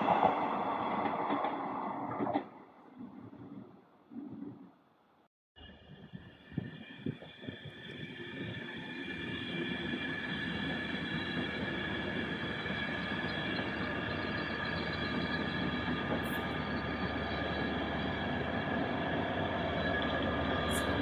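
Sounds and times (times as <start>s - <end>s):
high-pitched train whine: 5.6s - 21.0s
train wheels rumbling on rail: 6.3s - 21.0s.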